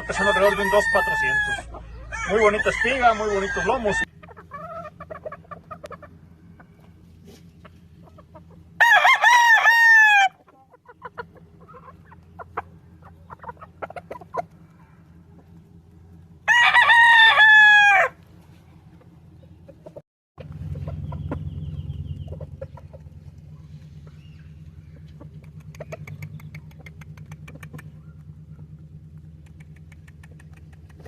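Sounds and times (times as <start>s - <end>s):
rooster crowing: 0.0s - 4.8s, 8.8s - 10.4s, 16.4s - 18.2s.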